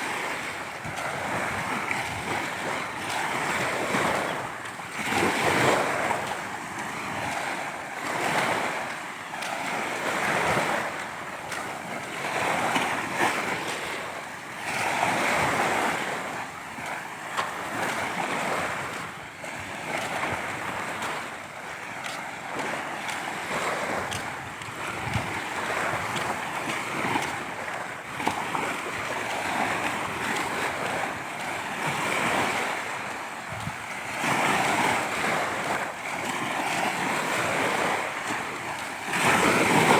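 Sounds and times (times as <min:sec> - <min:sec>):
wind on microphone: 0:00.0 - 0:08.9, 0:17.6 - 0:39.9
sea waves breaking on shore: 0:00.0 - 0:39.9.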